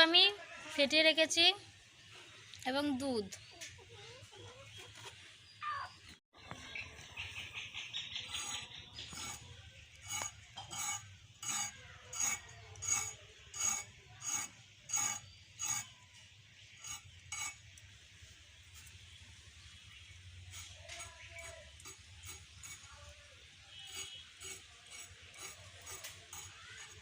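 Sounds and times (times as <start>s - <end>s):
scraping strokes: 8.2s - 16.0s, 16.8s - 17.7s, 20.4s - 27.0s.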